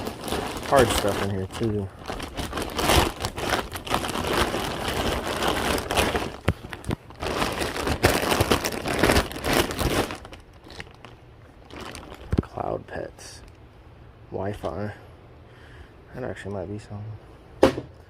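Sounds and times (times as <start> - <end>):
packaging crinkling and rustling: 0.0 - 12.8.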